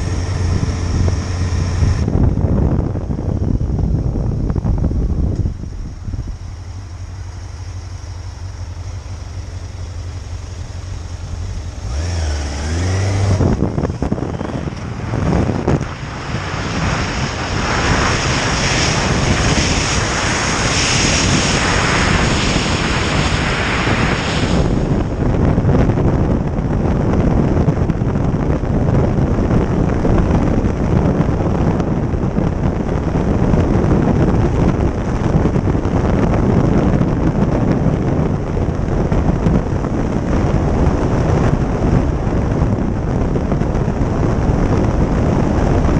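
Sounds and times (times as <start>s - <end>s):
loud wind and road noise: 0.0s - 45.9s
motorcycle engine running: 0.0s - 45.9s.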